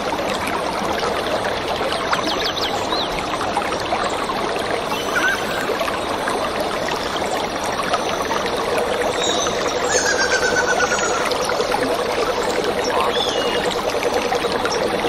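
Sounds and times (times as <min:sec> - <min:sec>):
stream water running: 0:00.0 - 0:15.0
small birds chirping: 0:12.8 - 0:13.8.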